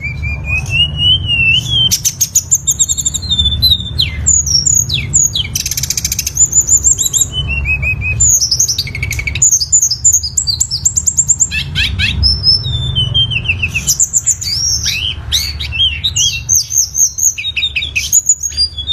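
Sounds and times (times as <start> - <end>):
songbird singing trills and whistles: 0.0 - 18.9.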